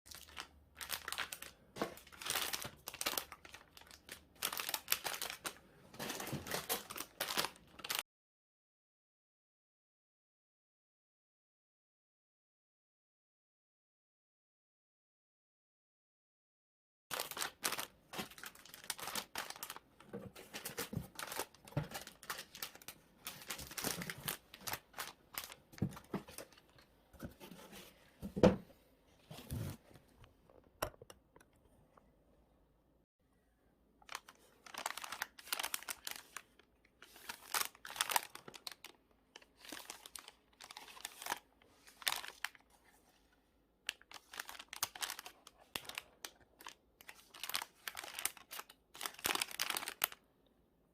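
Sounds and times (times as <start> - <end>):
plastic packaging crinkling: 0.1 - 8.0, 17.1 - 26.8, 34.0 - 43.0, 43.9 - 50.2.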